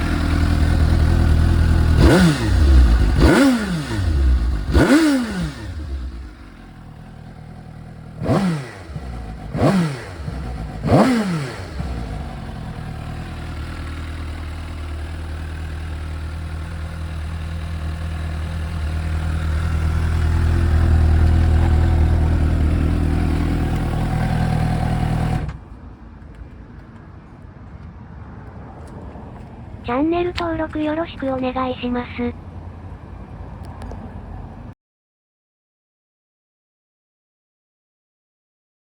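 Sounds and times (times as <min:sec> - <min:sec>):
motorcycle engine revving and idling: 0:00.0 - 0:25.6, 0:30.3 - 0:34.8.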